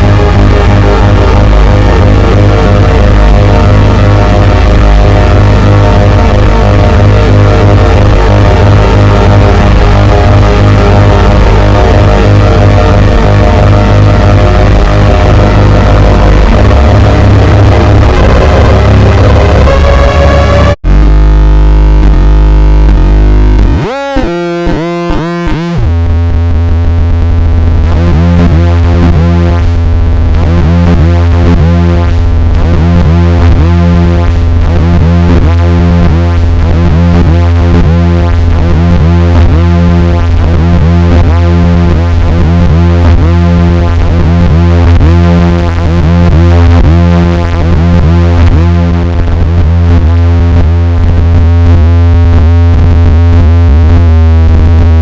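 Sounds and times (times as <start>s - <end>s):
higher pulsing tone: 0.0s - 26.6s
low synthesizer drone: 0.0s - 55.0s.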